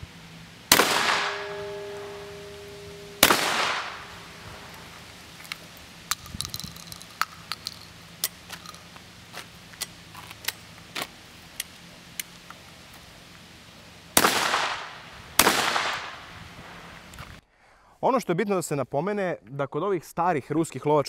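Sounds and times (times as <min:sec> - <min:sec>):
shotgun shots: 0:00.7 - 0:05.0, 0:14.2 - 0:16.3.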